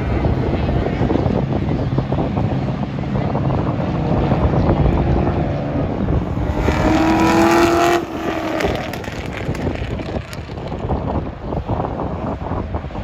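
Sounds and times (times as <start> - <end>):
wind noise on microphone: 0.0 - 13.0
race car engine passing: 5.2 - 10.8.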